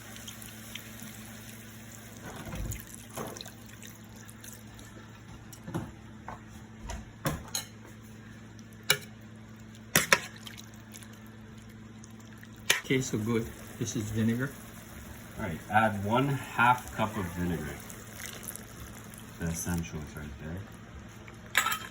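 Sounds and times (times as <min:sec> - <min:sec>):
water poured into a pan: 0:00.0 - 0:04.9, 0:16.8 - 0:19.4.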